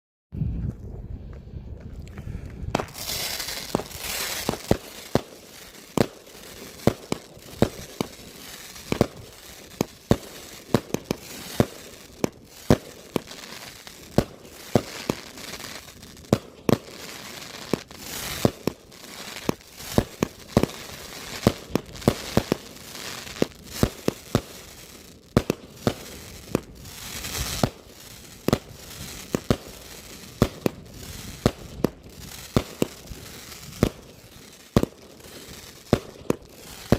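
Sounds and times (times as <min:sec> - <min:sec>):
firework bangs: 0:02.7 - 0:36.9
firework hiss and crackle: 0:02.7 - 0:36.9.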